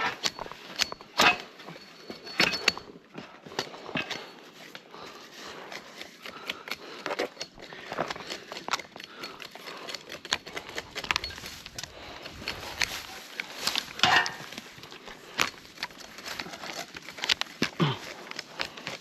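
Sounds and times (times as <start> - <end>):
twigs and branches snapping: 6.2 - 19.0.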